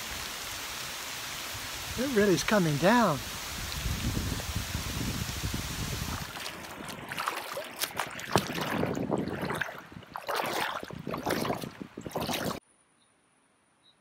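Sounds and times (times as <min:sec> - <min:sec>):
heavy rain falling: 0:00.0 - 0:06.7
water splashing and dripping: 0:00.0 - 0:12.6.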